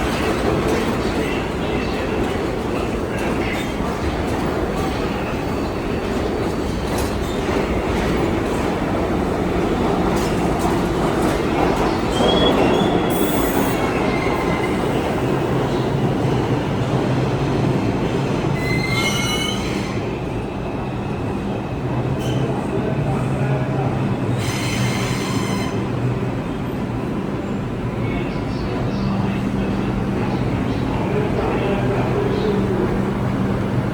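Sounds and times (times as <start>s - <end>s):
subway train rumbling on rails: 0.0s - 33.9s
train wheels squealing: 11.7s - 15.2s, 18.5s - 20.1s, 24.3s - 25.9s.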